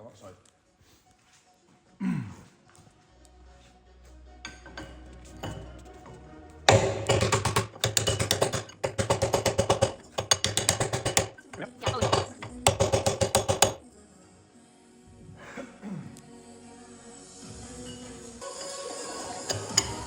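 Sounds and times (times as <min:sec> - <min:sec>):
pneumatic impact tool hammering: 0:06.7 - 0:13.8, 0:19.4 - 0:20.0.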